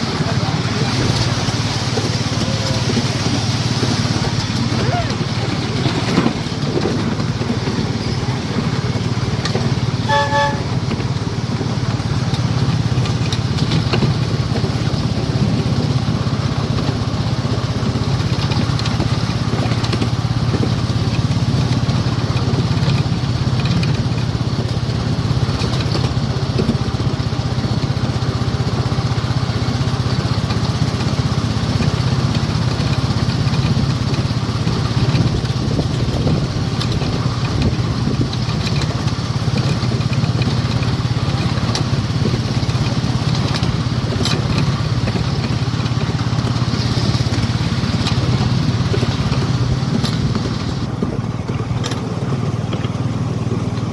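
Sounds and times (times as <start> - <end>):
miniature locomotive engine running: 0.0 - 53.9
locomotive horn toot: 9.8 - 11.6.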